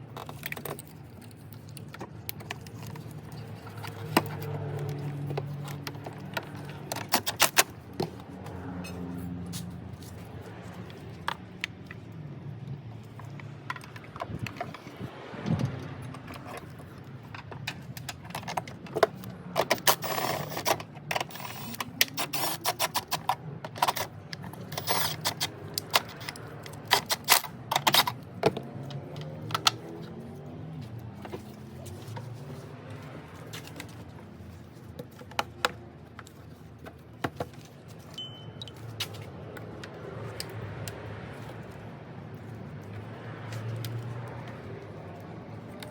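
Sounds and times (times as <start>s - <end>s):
metallic clicking and rattling: 15.9s - 29.9s.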